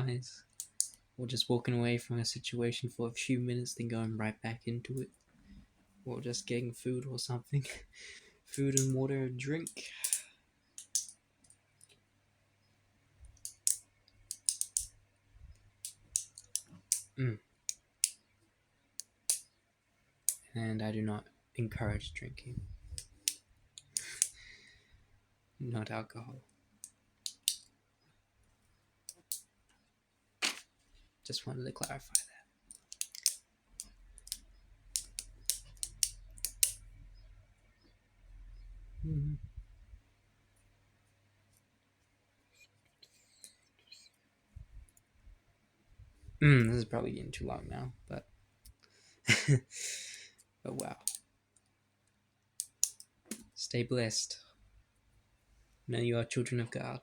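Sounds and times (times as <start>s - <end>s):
sharp light clicks: 0.6s - 1.0s, 8.5s - 9.0s, 9.6s - 10.2s, 10.8s - 11.2s, 13.4s - 14.9s, 15.8s - 18.2s, 19.0s - 19.5s, 22.9s - 24.4s, 26.8s - 27.7s, 29.1s - 29.5s, 31.8s - 36.9s, 50.8s - 51.2s, 52.6s - 53.4s
light sharp clicks: 13.3s - 14.9s, 31.8s - 36.9s, 50.8s - 51.7s.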